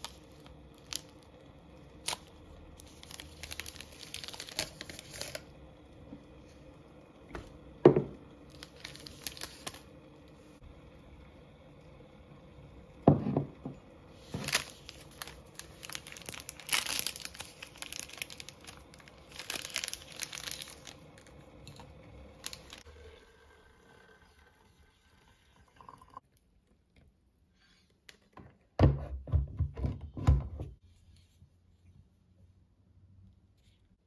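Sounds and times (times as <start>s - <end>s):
wrapping crinkling and tearing: 0.0s - 5.5s, 8.5s - 10.0s, 14.2s - 22.9s.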